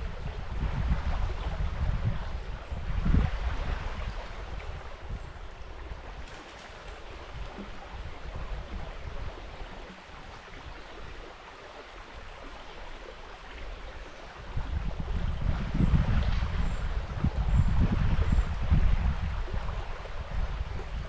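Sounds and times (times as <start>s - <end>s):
wind buffeting microphone: 0.0s - 11.4s, 12.2s - 21.0s
river water running: 0.0s - 21.0s.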